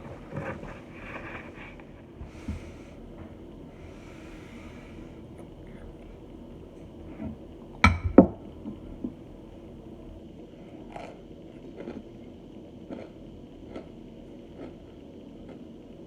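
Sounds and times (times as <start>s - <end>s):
chewing crackles: 10.8s - 15.7s.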